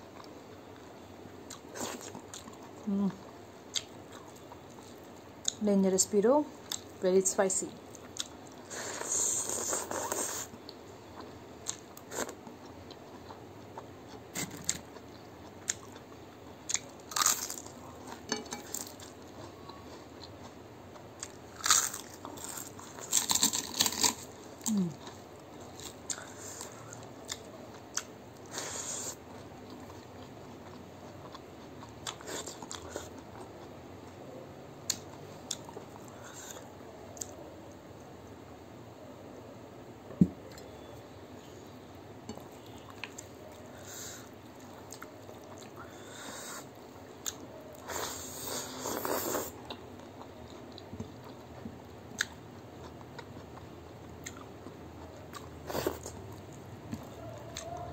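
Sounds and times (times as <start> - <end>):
wet chewing and crunching: 1.5 - 2.8, 7.9 - 34.2, 42.6 - 46.3, 47.2 - 57.9.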